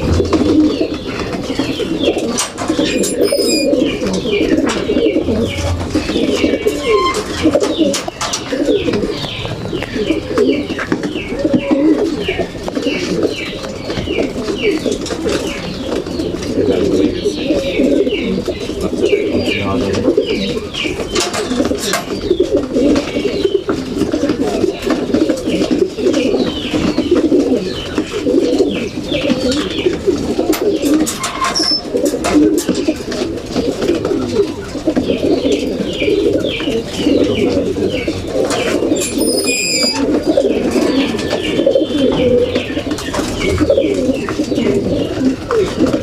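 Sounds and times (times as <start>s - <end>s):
pigeons cooing: 0.0s - 46.0s
short high chirps: 2.9s - 3.8s, 38.9s - 40.2s.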